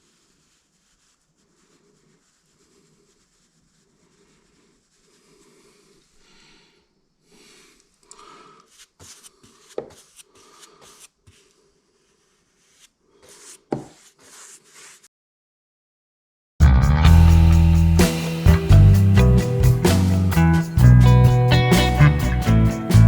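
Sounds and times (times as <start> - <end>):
brush rubbing and scraping wood: 0.0 - 6.4, 7.4 - 15.1.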